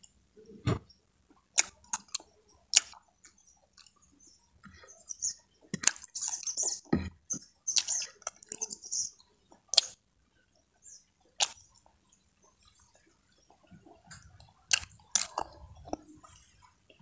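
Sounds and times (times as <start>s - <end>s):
wet chewing: 0.6s - 10.0s, 11.2s - 17.0s
lip smacks: 1.6s - 3.0s, 11.4s - 11.6s, 14.1s - 16.1s.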